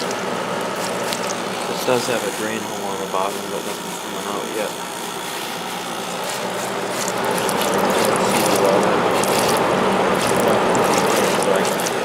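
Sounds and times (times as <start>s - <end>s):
air conditioner humming: 0.0s - 12.0s
water sloshing and rattling: 5.6s - 12.0s.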